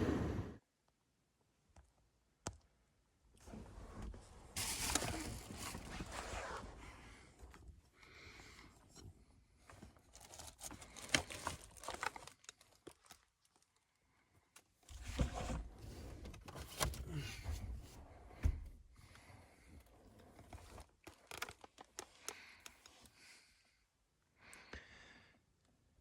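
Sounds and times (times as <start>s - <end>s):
rustling and crinkling: 3.4s - 7.8s, 8.5s - 23.2s.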